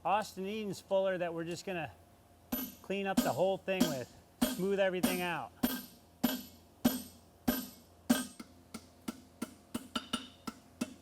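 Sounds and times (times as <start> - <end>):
hammer ringing on anvil: 2.5 - 8.5.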